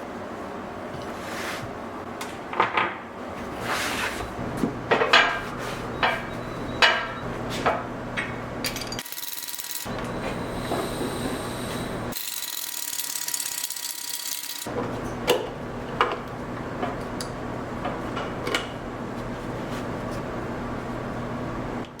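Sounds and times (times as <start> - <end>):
steady low hum: 9.8 - 12.2.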